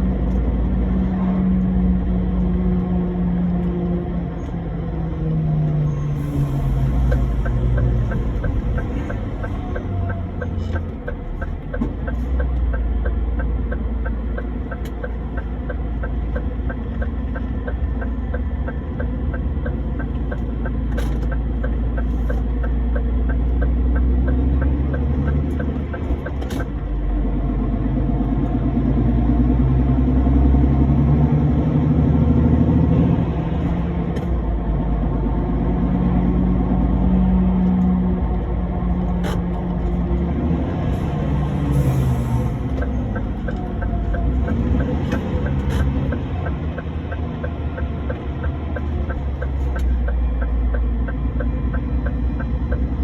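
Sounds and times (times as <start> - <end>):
truck engine running: 0.0 - 53.0
quick even ticking: 6.4 - 26.9, 41.4 - 53.0.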